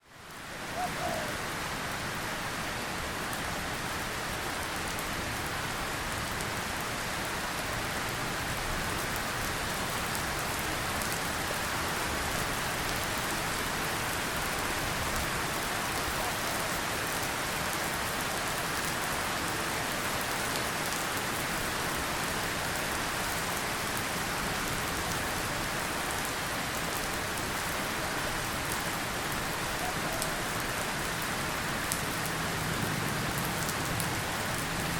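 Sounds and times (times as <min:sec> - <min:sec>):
steady rain falling: 0:00.0 - 0:34.9
rain drop ticks: 0:31.8 - 0:34.9.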